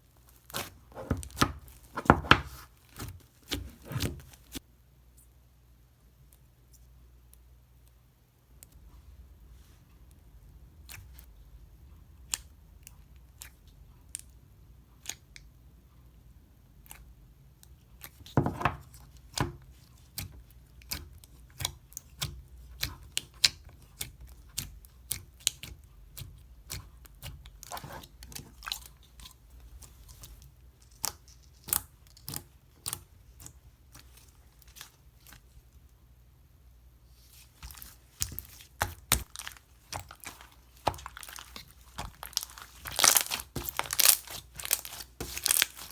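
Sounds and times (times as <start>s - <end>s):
slime popping and crackling: 37.6s - 45.9s.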